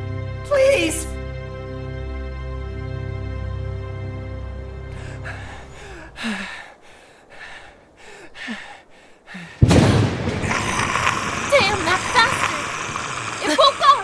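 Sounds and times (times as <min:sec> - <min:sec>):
man panting heavily: 0:04.9 - 0:09.6
loud creature roar: 0:10.4 - 0:14.0.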